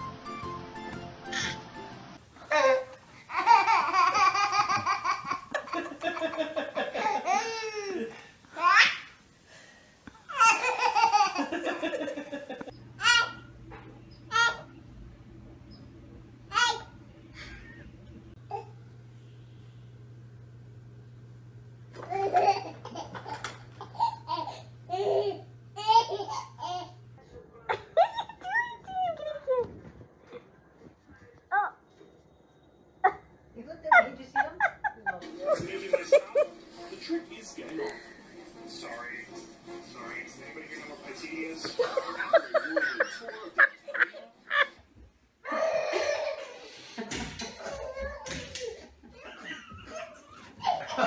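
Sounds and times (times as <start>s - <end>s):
baby laughing: 2.4s - 9.1s, 10.3s - 13.5s, 22.0s - 27.0s, 45.5s - 46.6s, 47.4s - 51.0s.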